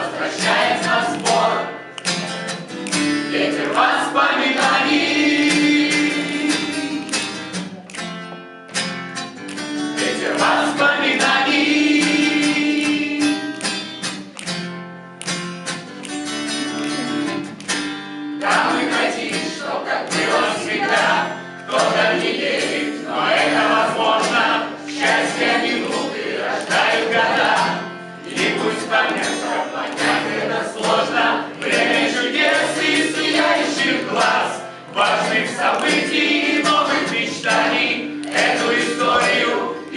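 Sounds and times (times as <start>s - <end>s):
group singing in unison: 0.0s - 1.9s, 3.1s - 7.2s, 9.9s - 13.6s, 18.4s - 39.9s
acoustic guitar: 0.0s - 39.9s.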